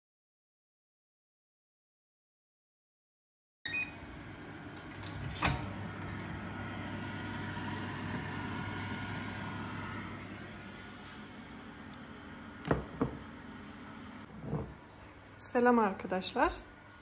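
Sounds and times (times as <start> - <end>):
electrical appliance hum: 3.7 - 17.0.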